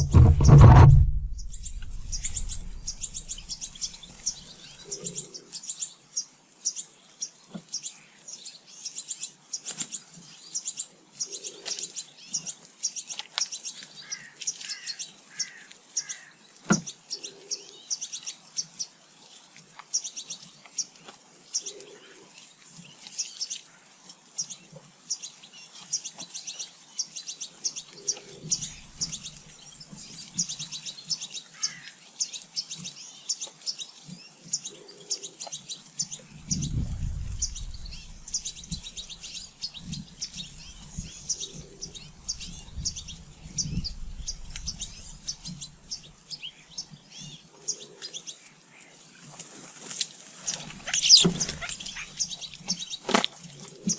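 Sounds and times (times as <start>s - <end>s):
sharp knock: 0.0s - 3.6s
low short bird call: 0.0s - 3.9s
small birds chirping: 0.0s - 53.9s.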